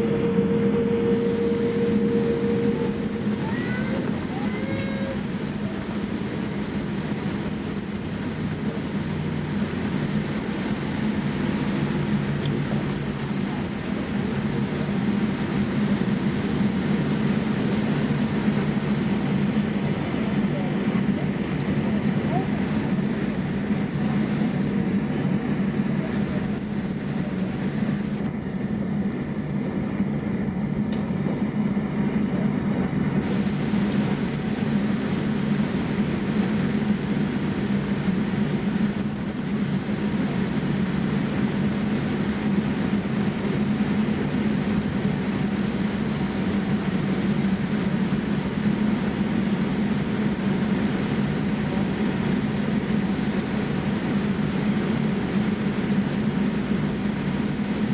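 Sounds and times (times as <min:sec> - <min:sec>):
aircraft cabin engine drone: 0:00.0 - 0:57.9.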